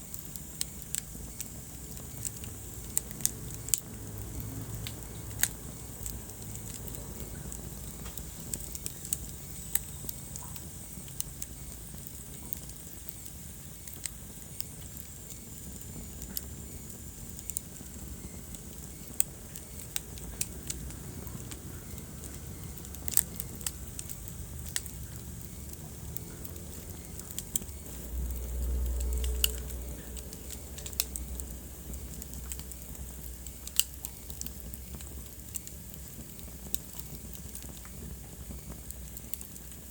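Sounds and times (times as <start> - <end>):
wood fire crackling: 0.0 - 39.9
low rumble: 24.8 - 33.6.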